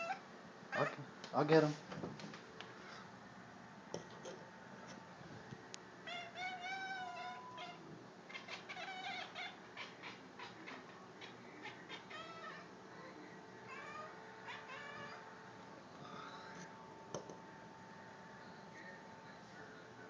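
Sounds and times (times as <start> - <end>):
cat meowing: 6.1 - 12.7, 13.7 - 15.2.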